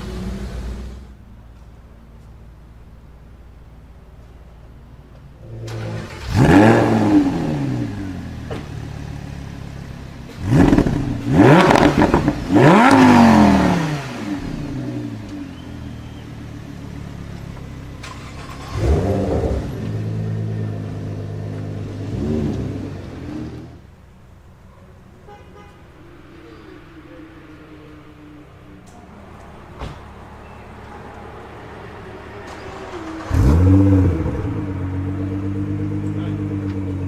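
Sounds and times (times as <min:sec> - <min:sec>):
sports car engine revving: 0:05.4 - 0:23.9, 0:31.8 - 0:37.0.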